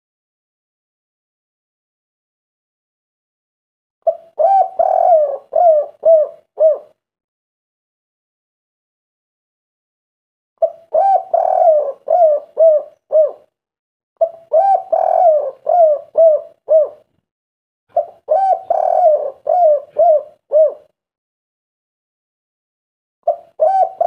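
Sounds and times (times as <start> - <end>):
dove cooing: 4.0 - 7.0, 10.6 - 13.5, 14.2 - 17.1, 17.9 - 21.0, 23.2 - 24.0.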